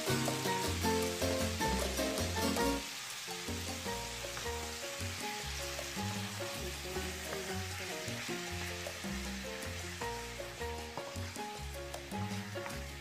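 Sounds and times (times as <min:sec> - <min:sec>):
background music: 0:00.0 - 0:13.0
chicken sizzling in frying pan: 0:00.0 - 0:13.0
wooden spatula stirring: 0:05.8 - 0:09.2.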